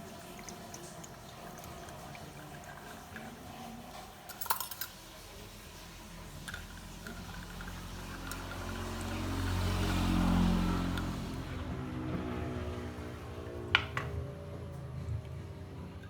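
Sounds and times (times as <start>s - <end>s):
vehicle passing by: 7.2s - 16.0s.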